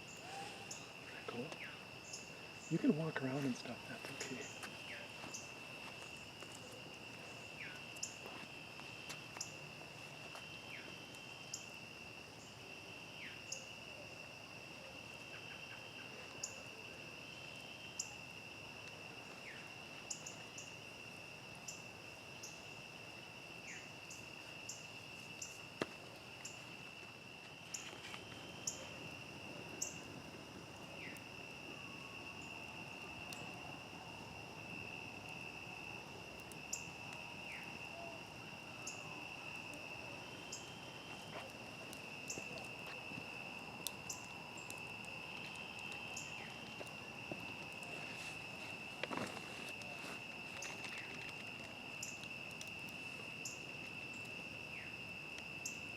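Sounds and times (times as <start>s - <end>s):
campfire popping and crackling: 0.0s - 55.9s
crickets trilling: 0.0s - 55.9s.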